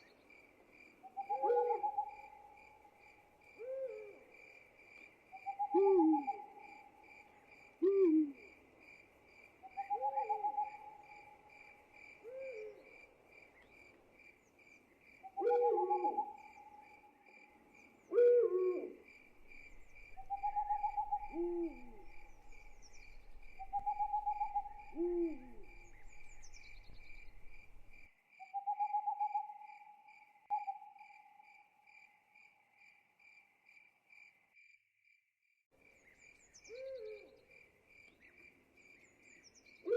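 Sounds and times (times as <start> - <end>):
owl hooting: 1.1 - 2.5, 3.6 - 4.2, 5.4 - 7.0, 7.8 - 8.5, 9.7 - 11.4, 15.3 - 16.9, 18.1 - 29.7, 36.7 - 37.3
crickets trilling: 19.1 - 28.1.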